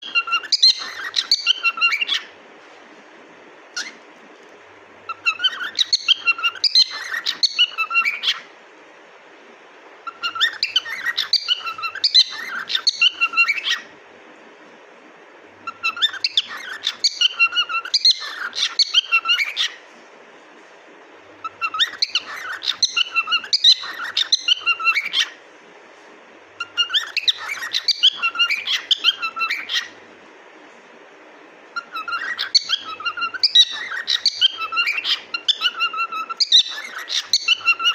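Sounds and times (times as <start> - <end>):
cockatiel chirping and whistling: 0.0 - 2.3, 3.8 - 4.0, 5.1 - 8.4, 10.1 - 13.9, 15.6 - 19.8, 21.5 - 25.3, 26.6 - 30.0, 31.8 - 37.9.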